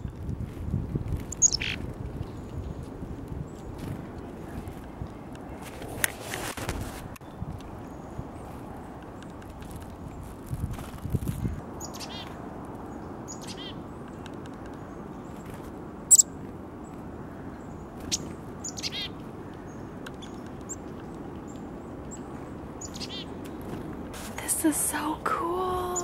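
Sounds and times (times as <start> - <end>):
songbirds calling: 1.1 - 5.8, 11.3 - 26.0.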